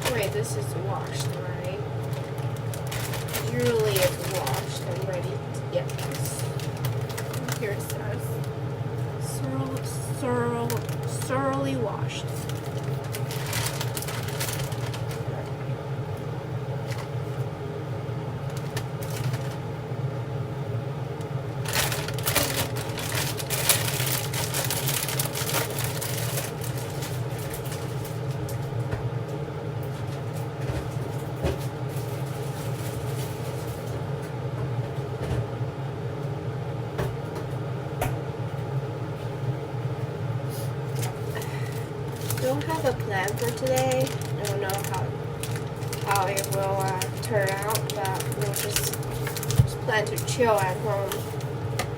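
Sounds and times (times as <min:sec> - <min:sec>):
cooking clicks and clatter: 0:00.0 - 0:17.2, 0:18.4 - 0:19.7, 0:21.2 - 0:28.9, 0:40.9 - 0:51.9
kitchen appliance humming: 0:00.0 - 0:51.9.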